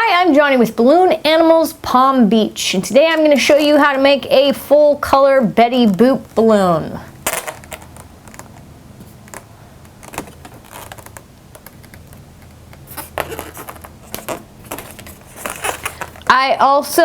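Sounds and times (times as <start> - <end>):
low steady hum: 0.0 - 17.0
rustling: 7.1 - 16.4.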